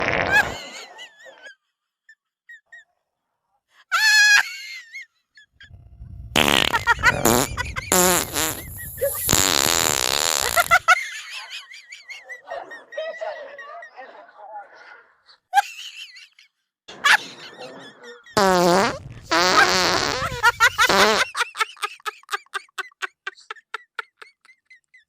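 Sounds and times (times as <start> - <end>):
loud farts: 0.0 - 0.6, 6.3 - 10.9, 18.4 - 21.3.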